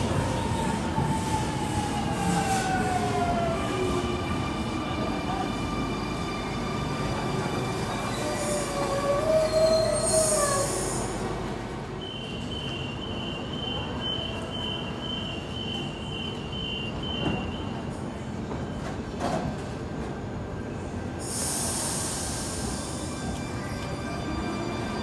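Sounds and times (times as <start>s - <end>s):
low train rumble: 0.0s - 25.0s
train wheels squealing: 5.1s - 11.2s
air hiss: 21.2s - 23.1s.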